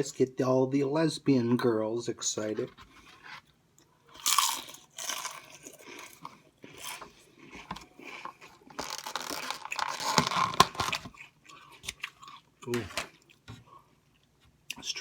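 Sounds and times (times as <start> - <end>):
person chewing crunchy food: 3.8 - 13.4.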